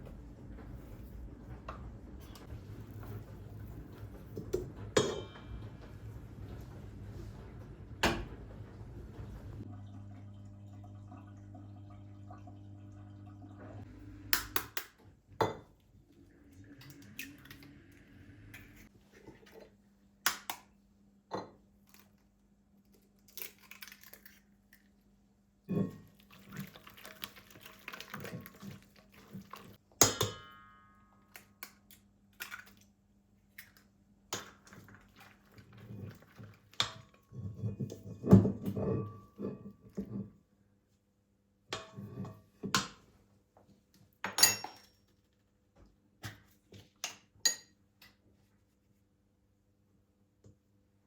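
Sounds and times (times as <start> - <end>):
dishes and utensils clinking: 2.2 - 9.6, 44.3 - 45.1.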